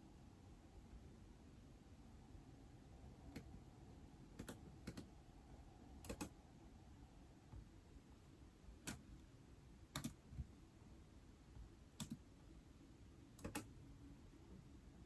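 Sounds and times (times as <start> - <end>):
faint room hiss: 0.0 - 15.0
keyboard keystrokes: 4.4 - 5.1, 6.1 - 6.3, 10.0 - 10.2, 12.0 - 12.2, 13.4 - 13.7.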